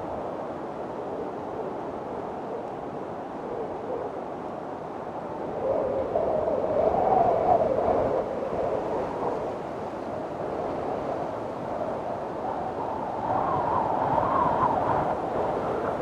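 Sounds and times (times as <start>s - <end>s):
wind howling: 0.0s - 9.5s.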